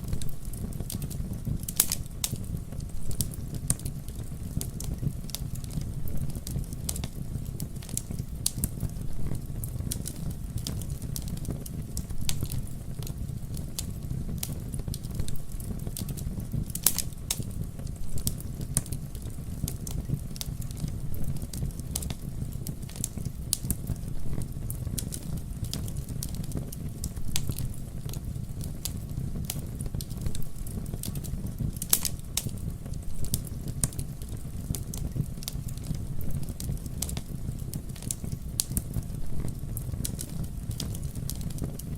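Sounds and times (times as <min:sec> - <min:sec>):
campfire crackling: 0:00.0 - 0:41.9
sharp fire pops: 0:00.0 - 0:41.9.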